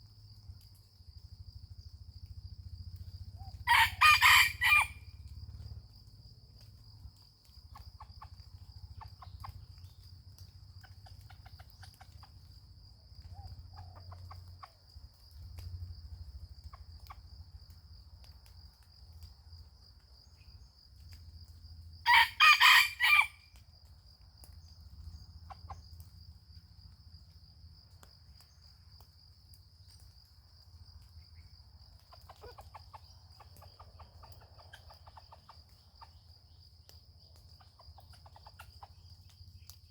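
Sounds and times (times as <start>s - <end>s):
rooster crowing: 3.6s - 5.1s, 22.0s - 23.5s
faint clucks: 7.6s - 12.6s, 13.2s - 15.7s, 31.9s - 39.4s.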